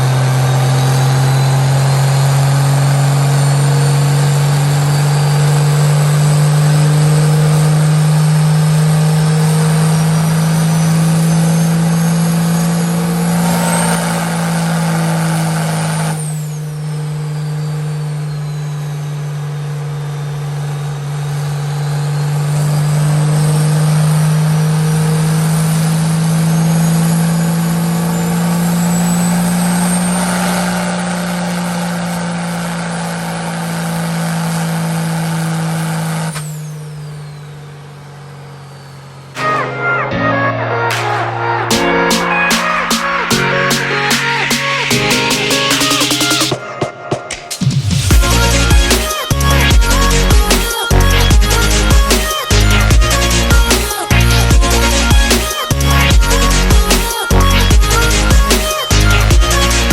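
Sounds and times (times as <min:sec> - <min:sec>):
diesel truck engine under load: 0:00.0 - 0:41.6, 0:47.7 - 0:59.9
turbo whistle: 0:36.3 - 0:59.9.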